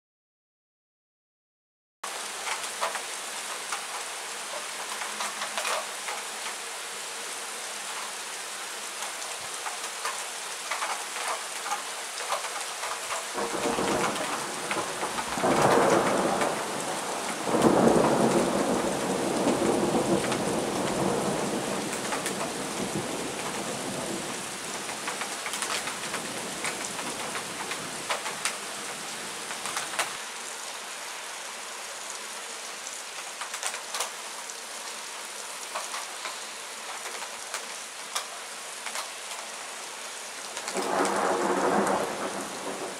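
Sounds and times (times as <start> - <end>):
heavy rain pattering: 2.1 - 42.9
rolling thunder: 13.4 - 24.4, 40.7 - 42.9.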